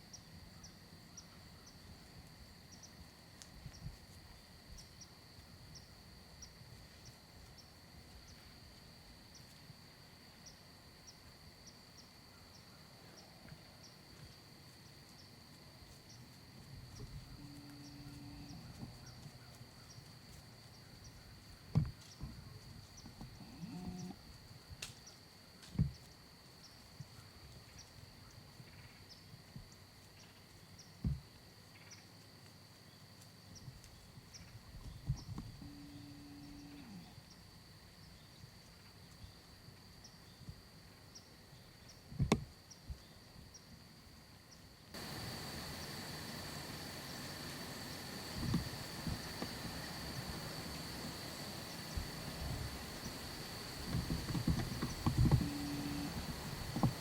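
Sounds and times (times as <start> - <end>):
faint high insect-like hum: 0.0 - 57.0
soft thumps: 53.8 - 57.0.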